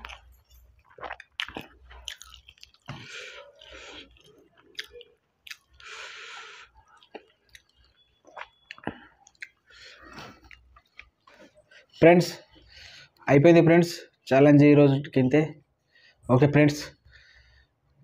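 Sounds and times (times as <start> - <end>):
chewing and wet mouth clicks: 0.0 - 6.0, 6.6 - 12.0.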